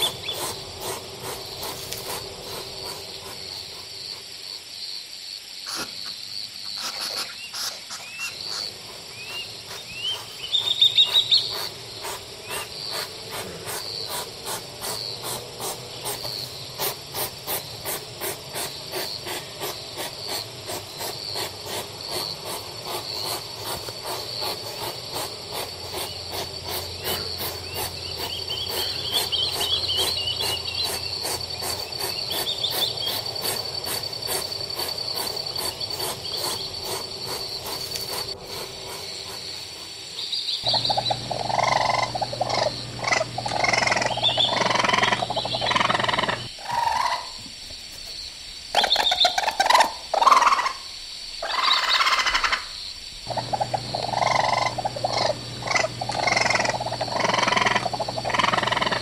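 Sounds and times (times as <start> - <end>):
insects chirping: 0.0 - 59.0
high-pitched whine: 40.6 - 46.5, 53.3 - 59.0.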